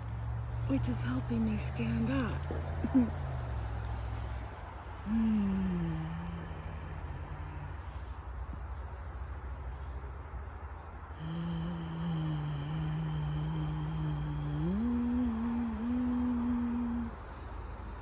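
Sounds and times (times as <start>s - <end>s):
small birds chirping: 0.0s - 18.0s
person humming low note: 5.0s - 7.9s, 11.2s - 17.2s.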